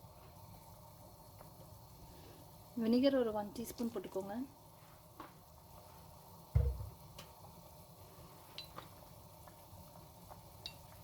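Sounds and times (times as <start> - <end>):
soup simmering in a pot: 0.0 - 11.0
dull low thump: 6.5 - 7.0.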